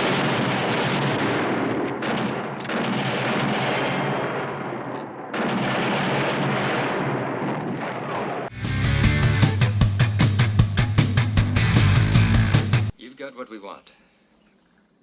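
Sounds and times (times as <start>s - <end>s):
barrage of gunfire: 0.0s - 8.5s.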